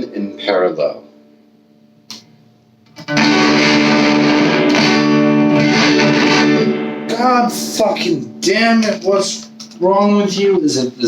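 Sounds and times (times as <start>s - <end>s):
distorted electric guitar chord: 3.0s - 9.8s.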